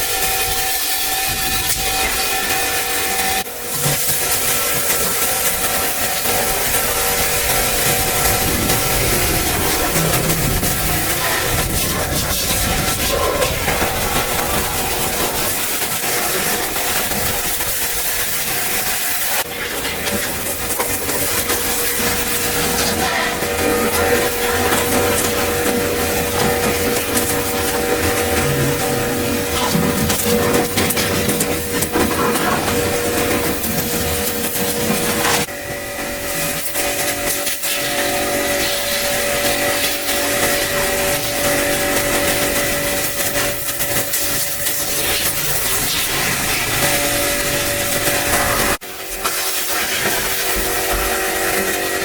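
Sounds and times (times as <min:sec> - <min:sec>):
cleaning equipment hissing: 0:00.0 - 0:52.0
small electric motor running: 0:05.1 - 0:17.7.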